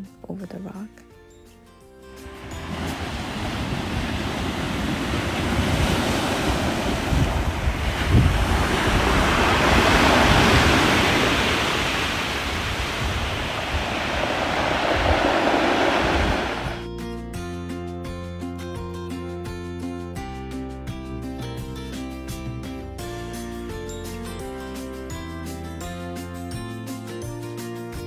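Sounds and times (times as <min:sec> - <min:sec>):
ocean waves breaking: 0:02.1 - 0:16.8
wind buffeting microphone: 0:02.3 - 0:16.8.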